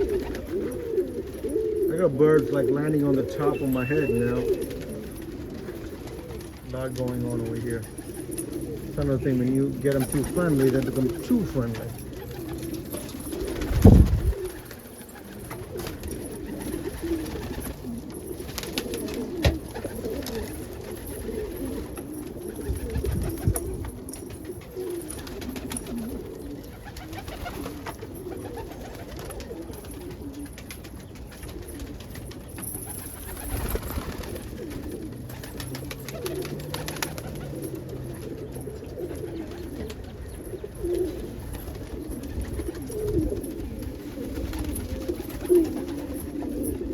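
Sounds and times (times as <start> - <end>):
pigeons cooing: 0.0 - 46.9.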